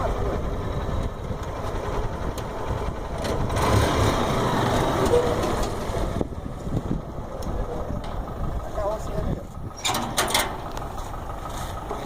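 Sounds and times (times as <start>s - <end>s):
small engine rough rumble: 0.0s - 12.0s.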